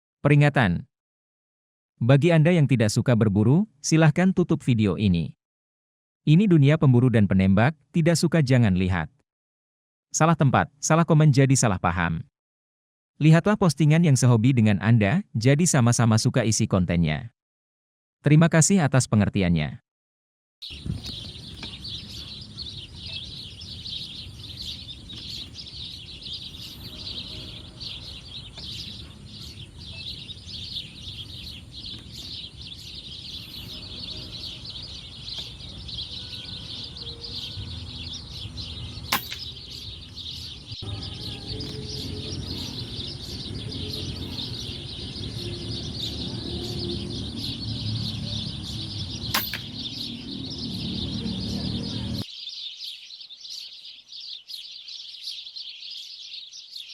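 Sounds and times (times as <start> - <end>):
small birds chirping: 20.6 - 56.9
airgun shots: 39.1 - 39.6, 49.3 - 49.8.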